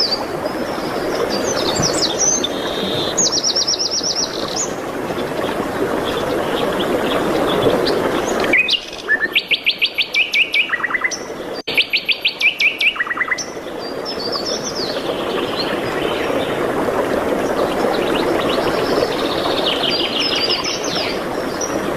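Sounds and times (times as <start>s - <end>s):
songbird singing: 0.0s - 4.8s, 5.4s - 16.4s.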